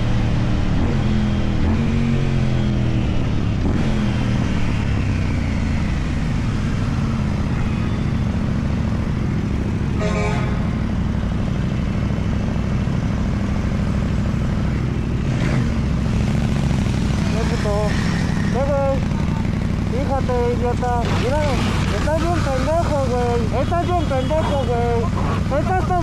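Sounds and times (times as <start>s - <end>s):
motorcycle engine running: 0.0s - 26.0s
vehicle horn blast: 10.0s - 10.8s, 23.3s - 25.2s.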